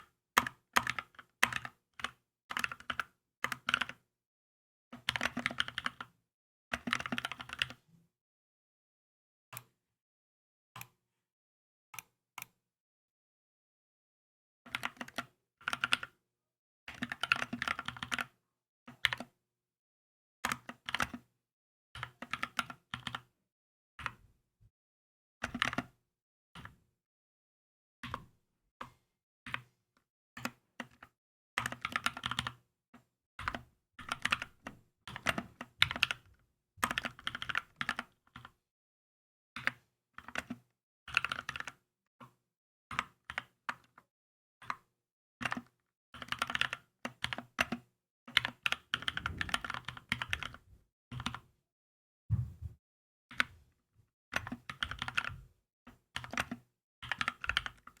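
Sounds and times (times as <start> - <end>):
mechanical keyboard typing: 5.1 - 6.1, 33.5 - 36.2, 36.8 - 38.5, 40.3 - 41.8, 45.4 - 47.8, 48.4 - 50.6, 54.4 - 55.4, 56.2 - 57.9.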